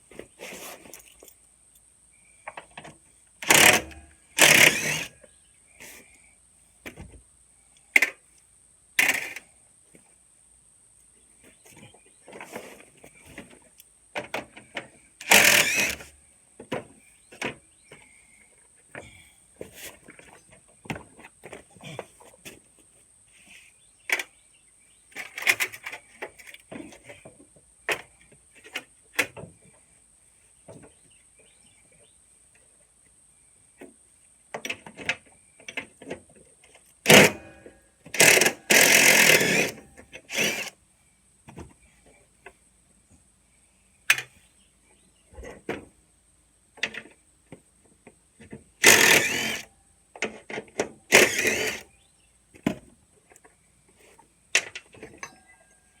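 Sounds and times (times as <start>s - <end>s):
hand tools and metal clanking: 2.5s - 5.2s, 11.6s - 18.1s, 34.6s - 40.7s, 48.4s - 51.9s, 53.3s - 55.8s.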